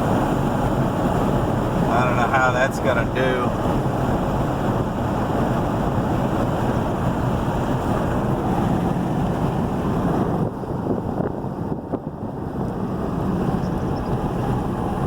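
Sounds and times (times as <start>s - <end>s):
road and tyre noise: 0.0s - 15.0s
wind noise from moving vehicle: 0.0s - 15.0s.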